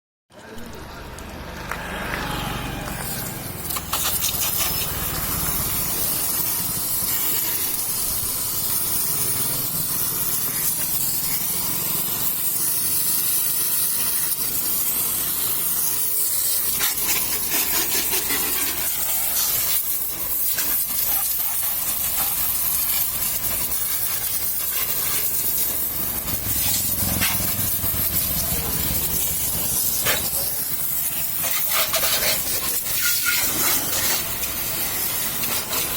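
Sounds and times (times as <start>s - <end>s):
hissing spray: 1.2s - 35.9s.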